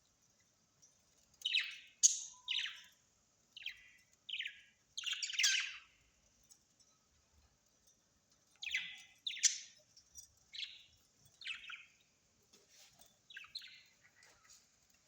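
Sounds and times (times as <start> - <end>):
bird chirping: 1.2 - 6.2, 8.4 - 15.0.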